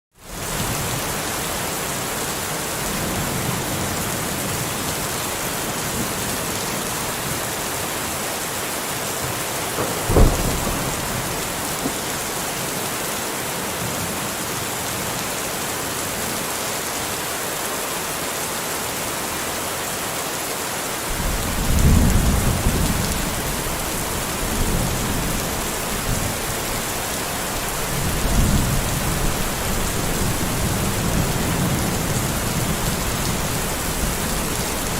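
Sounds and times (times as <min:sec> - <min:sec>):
steady rain: 0:00.1 - 0:34.9
thunder crack and rumbles: 0:09.8 - 0:12.3, 0:21.1 - 0:34.9.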